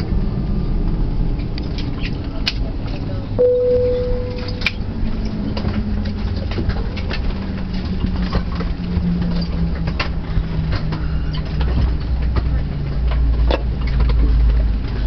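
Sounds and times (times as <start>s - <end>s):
aircraft cabin low rumble: 0.0s - 15.0s
tone: 3.4s - 5.1s
low hum: 3.4s - 10.6s.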